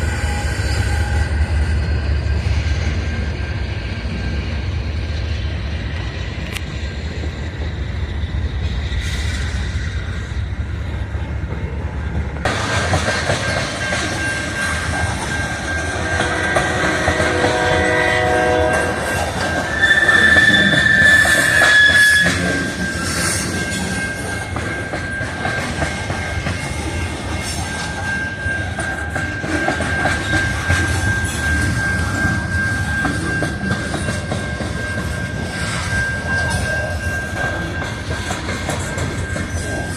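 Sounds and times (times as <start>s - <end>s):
high wheel squeal: 0.0s - 11.0s, 13.4s - 39.9s
diesel locomotive rumble: 0.0s - 39.9s
locomotive horn chord: 16.0s - 19.1s.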